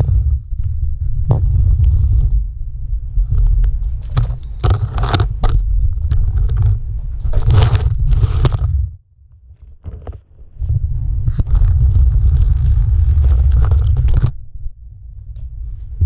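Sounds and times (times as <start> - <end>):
metal crunching and scraping: 3.2 - 10.5, 11.2 - 14.4.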